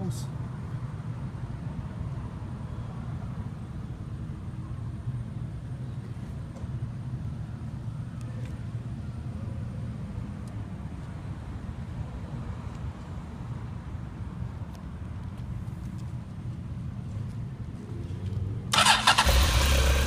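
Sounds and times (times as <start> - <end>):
motorcycle engine idling: 18.8 - 20.0.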